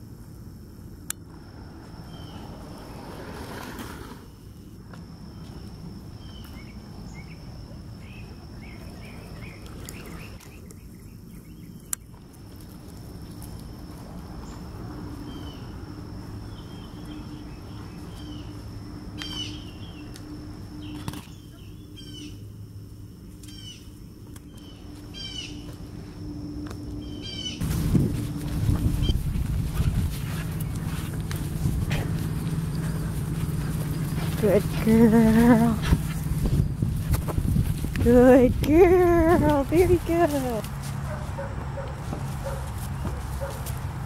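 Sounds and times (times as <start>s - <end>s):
low hum: 6.8s - 40.8s
birds chirping: 8.0s - 12.2s, 16.4s - 22.5s, 27.0s - 27.6s, 28.3s - 36.8s
steady high whine: 10.5s - 41.0s.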